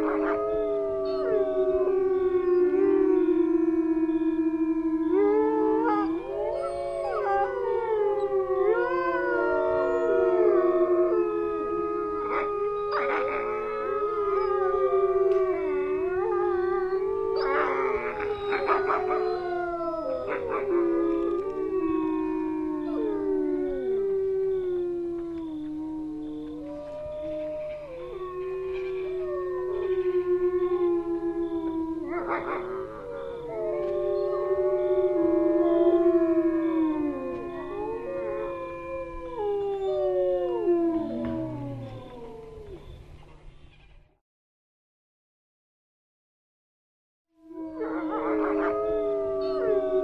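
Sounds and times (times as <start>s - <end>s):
wolves howling in chorus: 0.0s - 43.5s, 47.4s - 50.0s
wolves yipping and barking: 12.2s - 23.7s, 31.3s - 36.0s.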